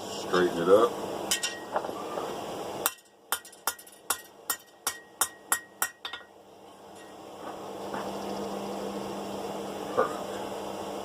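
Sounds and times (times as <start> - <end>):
hammer ringing on anvil: 2.9 - 6.3.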